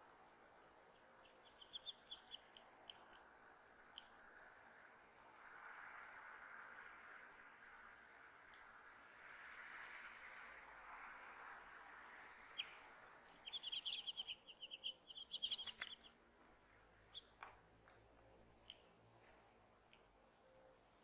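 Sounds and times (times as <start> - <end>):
faint clicks: 0.9 - 3.3, 3.9 - 4.2, 18.6 - 19.0
songbird chirping: 1.0 - 2.6, 13.4 - 16.2.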